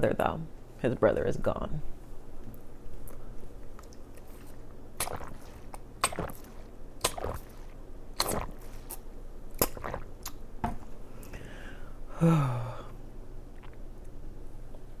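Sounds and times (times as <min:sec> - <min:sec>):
wet smacking eating sounds: 0:03.0 - 0:11.4, 0:13.5 - 0:14.2.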